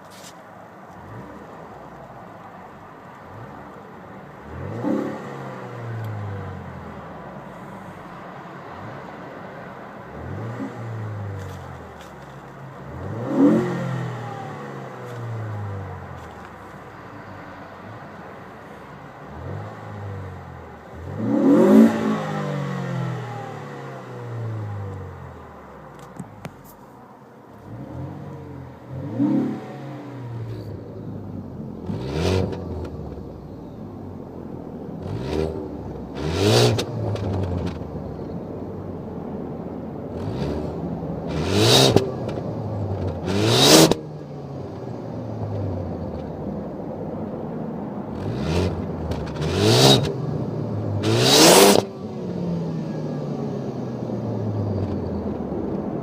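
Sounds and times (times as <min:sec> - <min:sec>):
car engine revving from idle: 0:03.2 - 0:08.1, 0:10.1 - 0:17.0, 0:18.7 - 0:26.0, 0:27.5 - 0:38.3, 0:40.0 - 0:46.3, 0:48.2 - 0:56.0.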